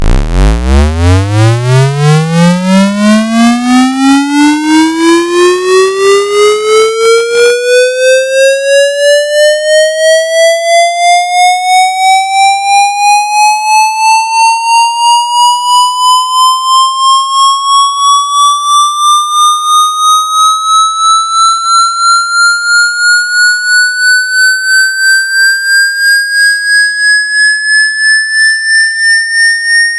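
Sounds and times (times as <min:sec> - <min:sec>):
electronic tone sweeping upward: 0:00.0 - 0:06.1, 0:15.7 - 0:29.9.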